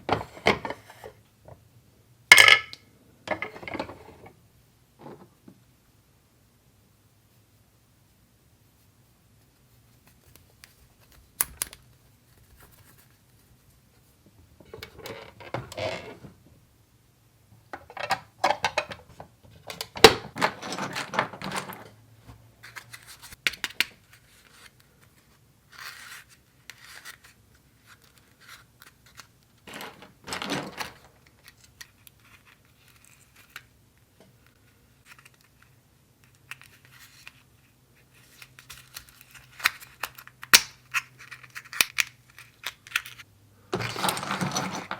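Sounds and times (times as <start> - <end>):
plastic pieces scraping and rustling: 19.7 - 22.0, 22.6 - 33.7, 34.5 - 44.9.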